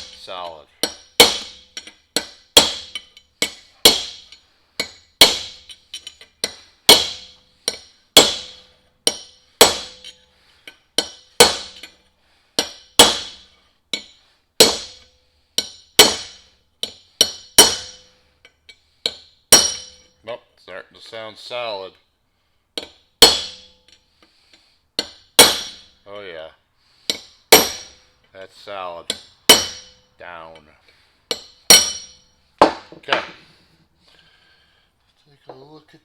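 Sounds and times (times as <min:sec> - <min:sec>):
hammer striking steel chisel: 0:00.0 - 0:18.2, 0:19.0 - 0:20.2, 0:22.8 - 0:24.0, 0:25.0 - 0:26.0, 0:27.0 - 0:28.0, 0:29.1 - 0:30.7, 0:31.3 - 0:33.4.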